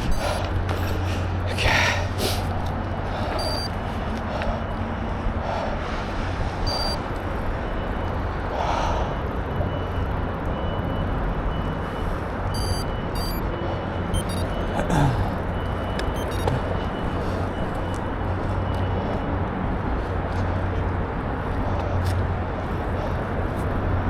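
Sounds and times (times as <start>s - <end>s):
scattered clicks: 3.4s - 3.7s, 6.7s - 7.0s, 12.6s - 13.4s, 14.1s - 14.7s, 15.6s - 16.6s.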